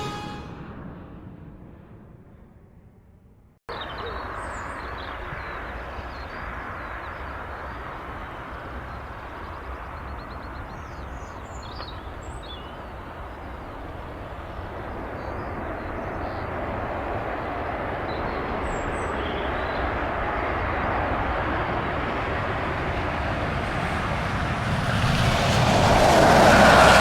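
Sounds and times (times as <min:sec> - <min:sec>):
intro music: 0:00.0 - 0:00.7
jet engines rushing: 0:00.0 - 0:01.1, 0:20.5 - 0:27.0.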